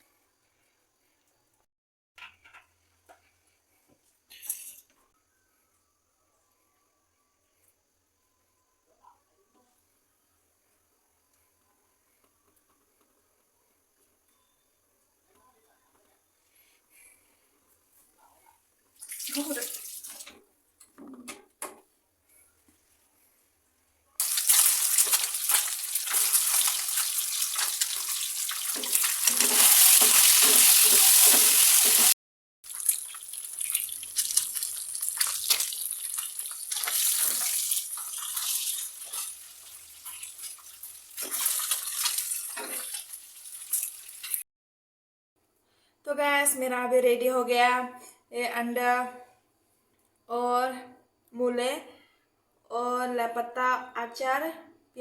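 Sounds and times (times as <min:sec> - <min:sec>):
tap water running into sink: 0:24.2 - 0:32.1, 0:32.7 - 0:44.4.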